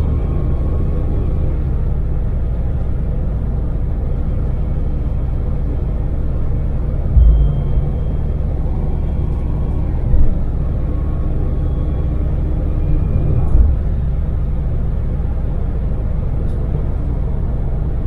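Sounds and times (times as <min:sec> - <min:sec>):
van engine rumbling: 0:00.0 - 0:18.0
short low thumps: 0:07.1 - 0:09.2.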